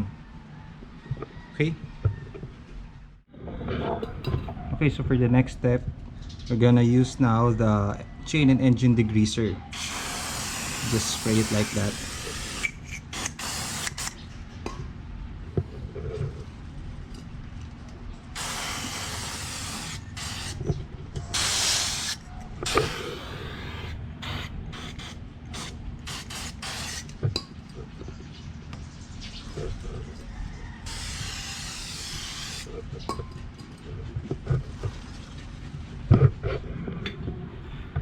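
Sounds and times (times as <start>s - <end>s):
aerosol can spraying: 9.8s - 14.2s, 18.4s - 27.1s, 30.9s - 32.7s.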